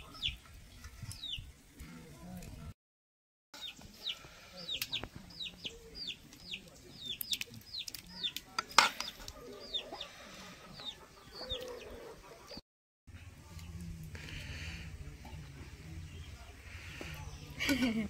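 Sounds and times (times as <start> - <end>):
bird chirping: 3.6 - 12.6.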